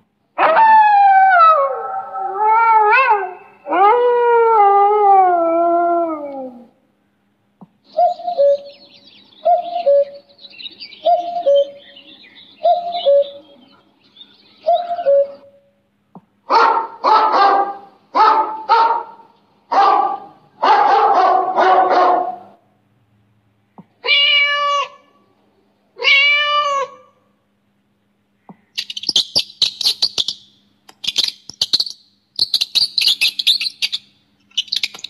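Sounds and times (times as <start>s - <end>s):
birds singing: 7.8s - 15.6s, 28.4s - 35.0s
cuckoo calling: 7.8s - 15.8s
dog barking: 16.5s - 22.6s.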